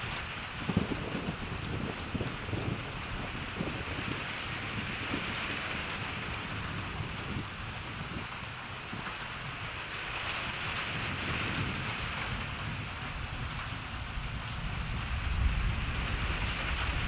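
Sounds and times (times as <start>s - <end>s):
steady rain falling: 0.0s - 17.0s
distant thunder rumbling: 11.1s - 17.0s.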